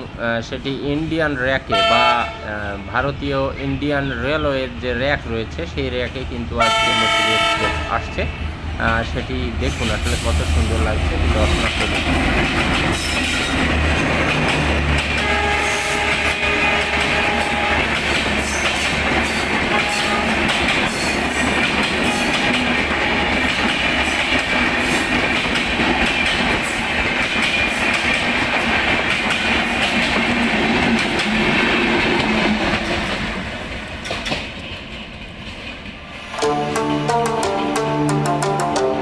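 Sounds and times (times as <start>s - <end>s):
train rumble: 0.0s - 39.0s
train wheels clacking over rail joints: 9.6s - 36.0s.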